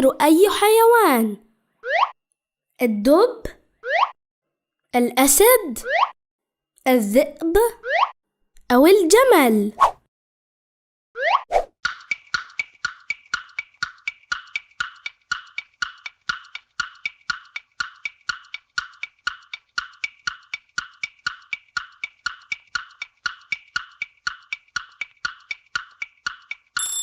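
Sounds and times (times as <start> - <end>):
countdown timer ticking: 11.9 - 27.0.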